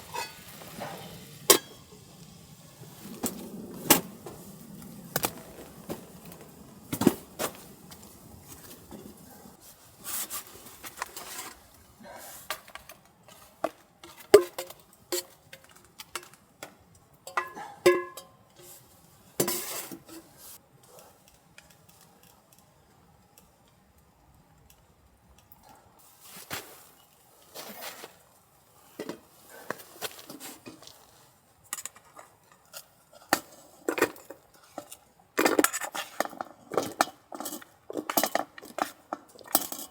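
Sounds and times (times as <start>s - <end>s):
metal cookware clinking: 0.0s - 2.0s, 17.2s - 18.8s, 19.4s - 20.3s, 35.7s - 39.9s.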